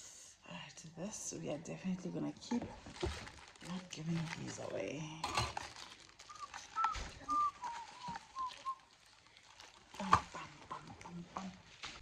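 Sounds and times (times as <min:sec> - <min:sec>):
person whistling a tune: 0:06.3 - 0:08.8.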